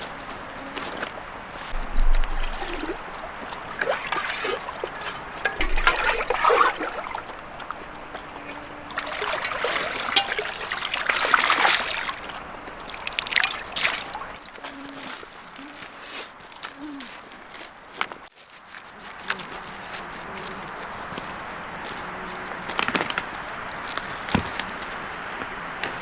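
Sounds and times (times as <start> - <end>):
small sharp splashes: 0.0 - 15.2
water splashing and trickling: 0.0 - 17.4.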